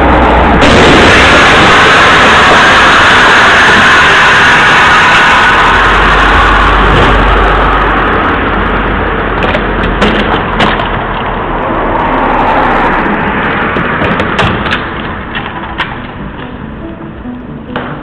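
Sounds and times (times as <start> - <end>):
road vehicle noise: 0.0 - 18.0
sharp cracks and knocks: 9.3 - 11.4, 13.6 - 16.6, 17.7 - 18.0.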